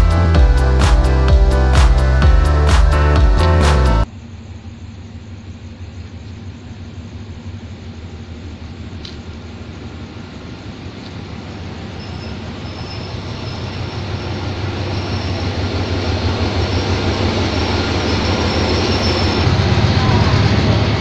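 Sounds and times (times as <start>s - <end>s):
diesel locomotive engine rumble: 0.0s - 21.0s
train wheels rolling: 8.9s - 21.0s
high wheel or brake squeal: 11.2s - 21.0s.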